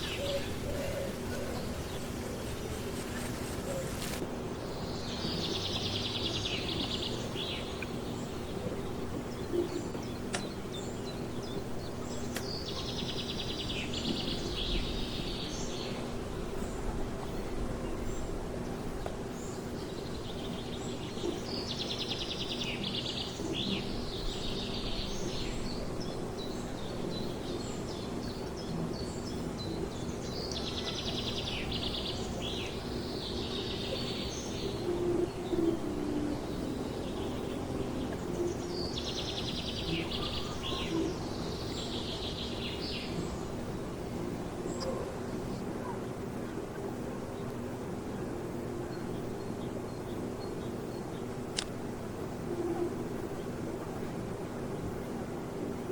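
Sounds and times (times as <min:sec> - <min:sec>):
songbird trilling: 0:00.0 - 0:04.2.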